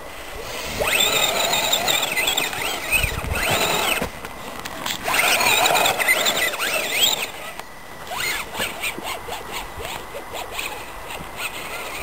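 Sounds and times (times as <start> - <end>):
rc car motor whining: 0.3 - 12.0.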